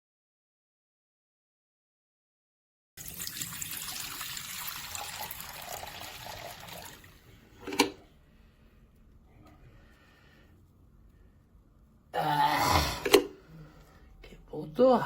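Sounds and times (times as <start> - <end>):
dirty water pouring out of tank: 3.0 - 7.1.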